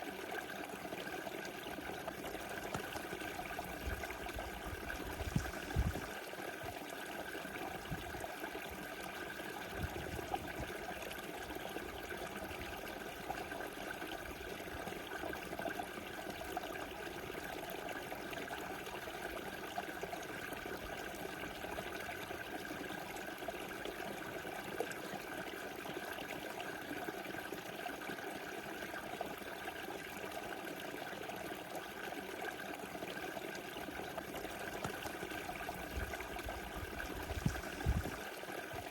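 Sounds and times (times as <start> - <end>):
river rushing and trickling: 2.3 - 6.8, 34.1 - 38.9
faint low bumps: 3.7 - 6.1, 35.8 - 38.2.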